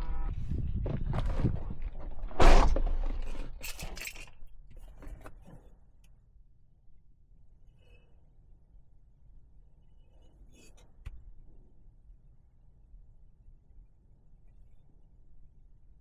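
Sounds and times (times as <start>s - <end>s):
objects clattering and knocking: 0.8s - 5.4s.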